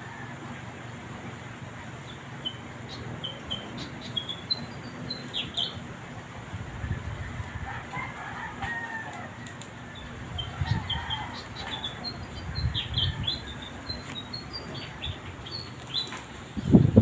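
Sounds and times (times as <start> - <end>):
small birds chirping: 1.9 - 6.1, 9.3 - 17.0
wind rumbling on microphone: 6.3 - 9.0, 9.9 - 15.7, 16.4 - 17.0.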